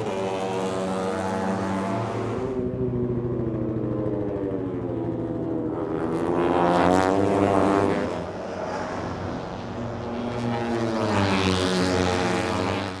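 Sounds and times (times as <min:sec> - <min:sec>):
racing motorcycle engines revving: 0:00.0 - 0:02.6.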